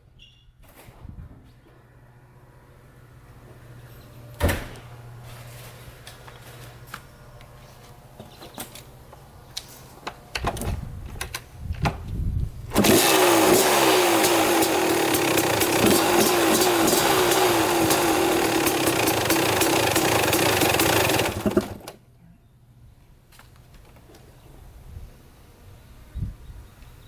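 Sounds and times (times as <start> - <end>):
handling noises: 3.4 - 12.2
motorcycle kick-start strokes: 12.7 - 22.0
two-stroke engine running: 12.7 - 22.0.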